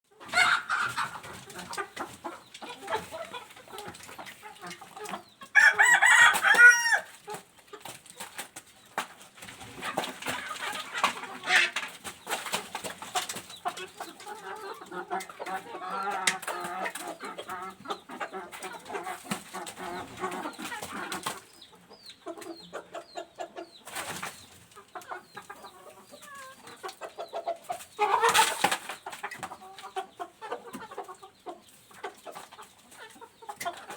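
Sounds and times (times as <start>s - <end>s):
chickens clucking: 0.1s - 33.9s
rooster crowing: 5.6s - 7.1s.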